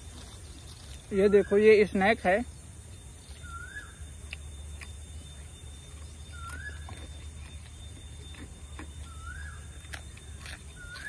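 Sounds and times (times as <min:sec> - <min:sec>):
bird whistling call: 0:03.4 - 0:04.2, 0:06.2 - 0:07.7, 0:08.3 - 0:11.0.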